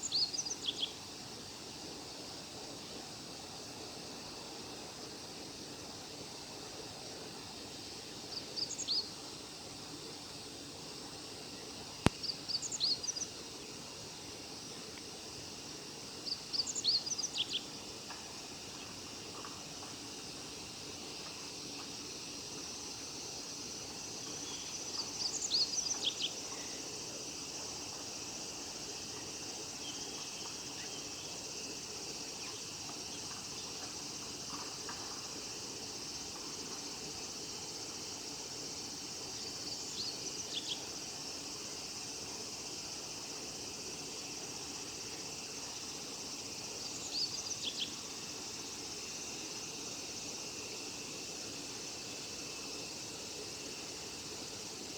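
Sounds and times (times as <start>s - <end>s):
high-pitched insect chorus: 0.0s - 54.9s.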